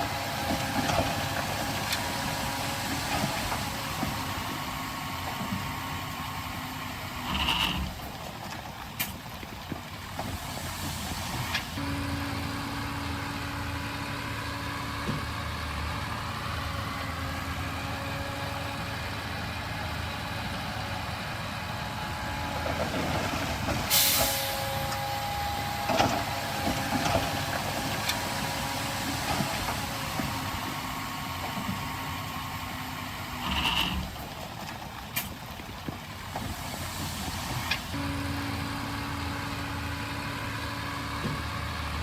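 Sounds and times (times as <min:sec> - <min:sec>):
diesel machinery engine running: 0:00.0 - 0:42.0
sharp hiss of air: 0:23.9 - 0:24.7.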